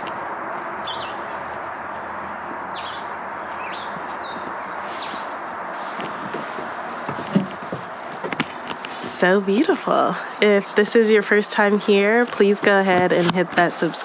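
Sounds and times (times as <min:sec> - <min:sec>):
rushing hiss of background noise: 0:00.0 - 0:14.0
small birds chirping: 0:00.0 - 0:14.0.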